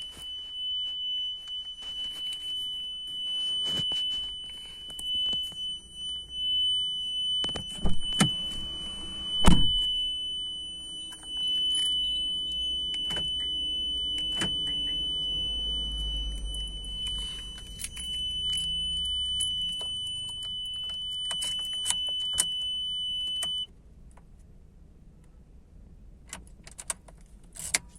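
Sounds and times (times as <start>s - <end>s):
high continuous buzzer tone: 0.0s - 23.7s
keys clinking: 11.0s - 22.6s.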